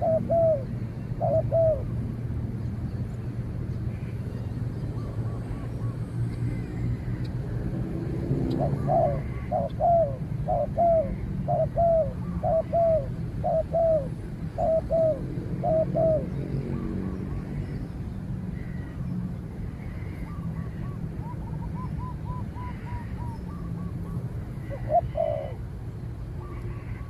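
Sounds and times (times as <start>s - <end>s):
dove cooing: 0.0s - 2.0s, 8.4s - 17.6s, 20.2s - 25.7s.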